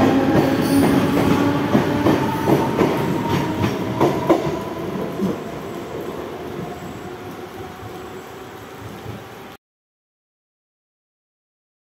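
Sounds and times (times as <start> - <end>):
train wheels clacking over rail joints: 0.1 - 4.6.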